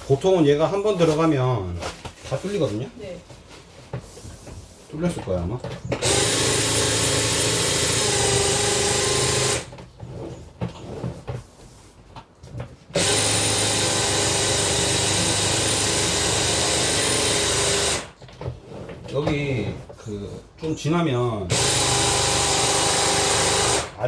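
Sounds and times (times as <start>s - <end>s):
drain cleaning machine whine: 6.0s - 9.8s, 13.0s - 18.1s, 21.5s - 24.0s.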